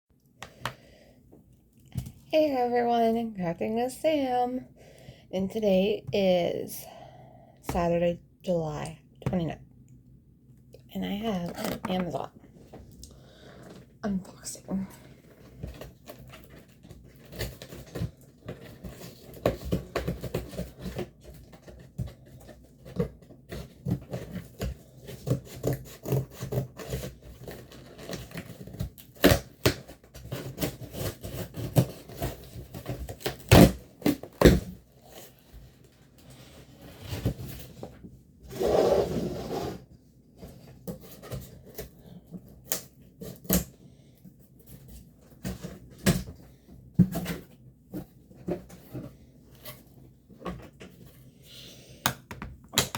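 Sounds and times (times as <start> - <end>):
cardboard packaging clicks and scrapes: 15.2 - 51.4.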